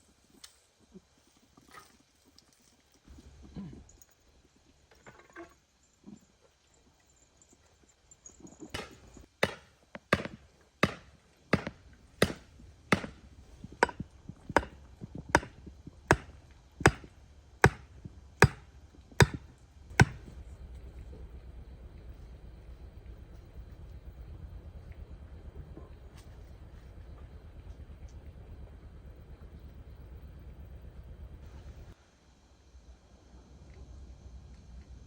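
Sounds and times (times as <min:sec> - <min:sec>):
hand tool chopping blows: 0:08.8 - 0:20.3.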